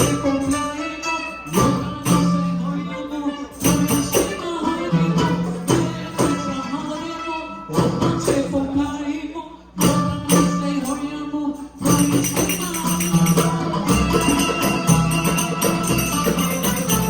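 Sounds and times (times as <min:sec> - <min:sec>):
tambourine shaking and striking: 0:03.5 - 0:06.6, 0:09.9 - 0:17.0
sustained pitched instruments: 0:11.8 - 0:17.0.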